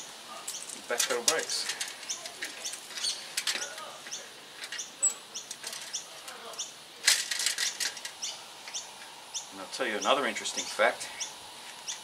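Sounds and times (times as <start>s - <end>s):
bird chirping: 2.0s - 6.8s, 7.6s - 12.0s
bicycle wheel metallic clicks: 4.6s - 8.9s.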